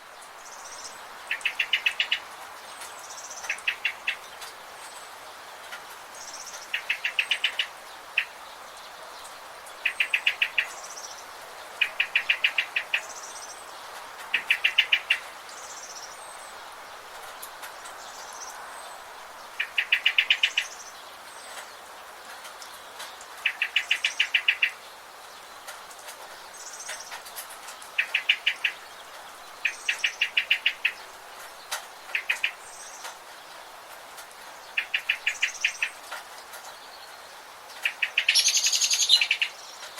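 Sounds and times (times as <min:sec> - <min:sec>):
soft high bird chirps: 0:37.9 - 0:39.9.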